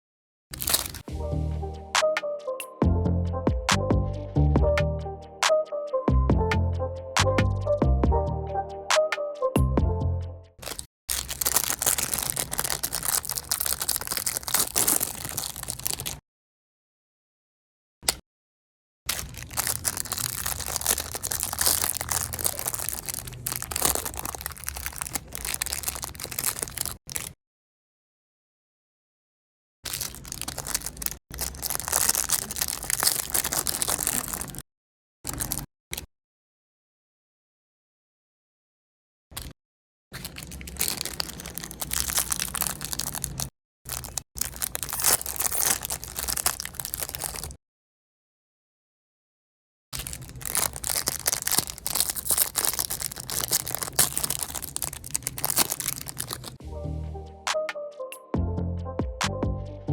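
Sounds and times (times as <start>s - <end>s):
meat grinder crunching: 10.6s - 16.2s, 19.1s - 27.3s, 29.9s - 34.6s, 40.2s - 47.5s, 50.0s - 56.6s.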